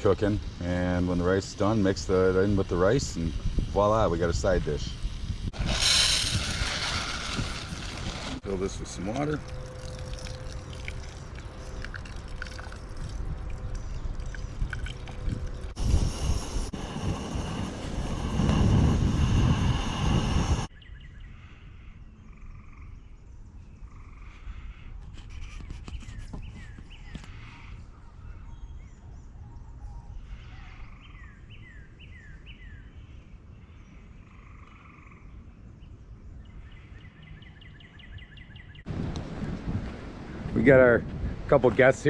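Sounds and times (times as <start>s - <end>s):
loud rushing noise: 5.5s - 8.5s, 15.7s - 20.7s
bird calls: 20.7s - 38.9s
faint frog calls: 23.8s - 24.9s, 33.6s - 35.5s.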